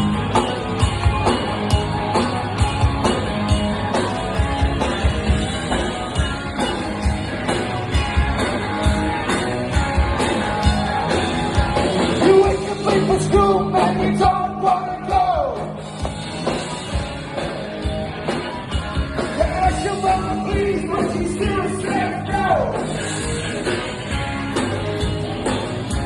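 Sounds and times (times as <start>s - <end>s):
live rock band playing: 0.0s - 26.0s
man singing: 12.2s - 15.7s, 19.4s - 22.9s.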